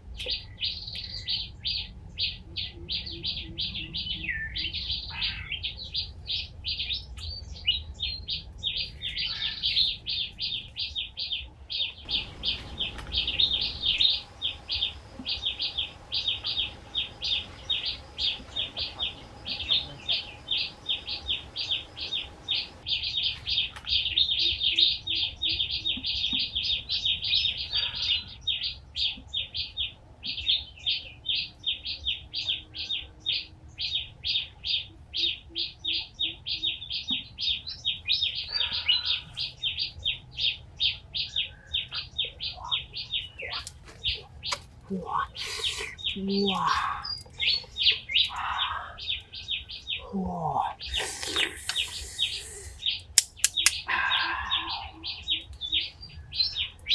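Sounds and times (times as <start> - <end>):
bird chirping rapidly: 12.0 - 28.6, 35.6 - 56.9.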